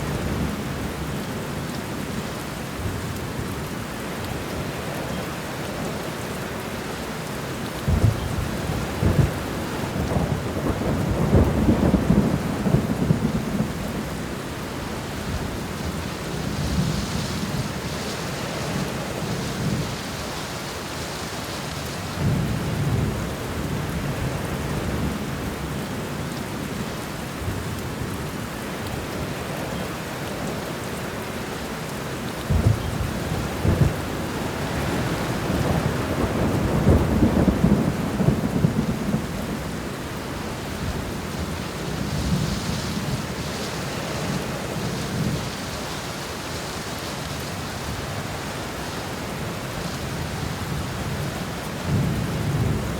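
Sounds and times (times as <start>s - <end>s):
heavy rain: 0.0s - 52.9s
thunder rumbling: 7.8s - 19.9s, 32.4s - 45.7s, 49.4s - 52.9s.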